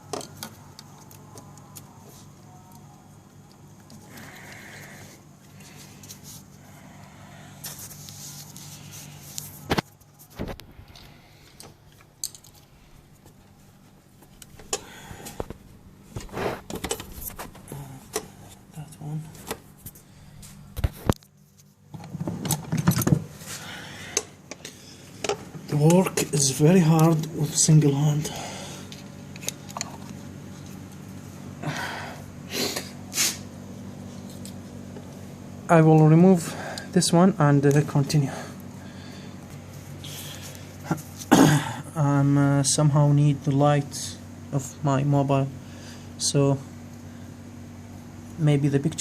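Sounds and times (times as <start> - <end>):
faint low hum: 0.0 - 49.0
man huffing through nose: 31.6 - 33.5.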